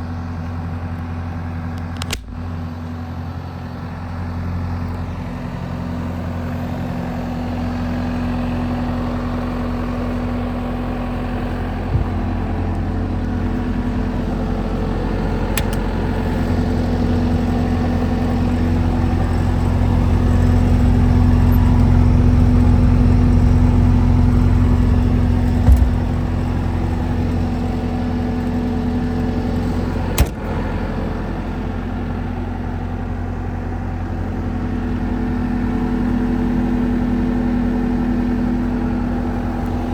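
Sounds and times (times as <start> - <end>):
diesel engine running: 0.0 - 39.9
sharp clicks and knocks: 2.0 - 2.4, 11.9 - 13.0, 15.5 - 16.0, 25.4 - 26.3, 30.2 - 30.5.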